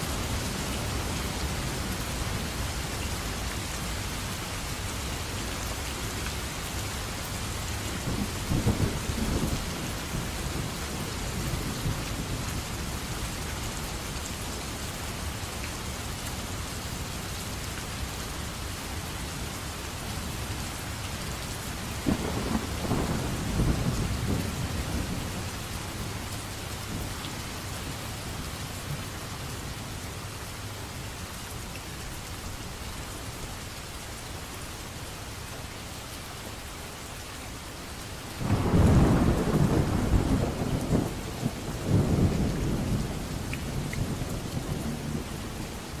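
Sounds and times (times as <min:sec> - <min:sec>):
steady rain: 0:00.0 - 0:46.0
low rolls of thunder: 0:08.0 - 0:13.0, 0:22.0 - 0:26.2, 0:38.4 - 0:46.0.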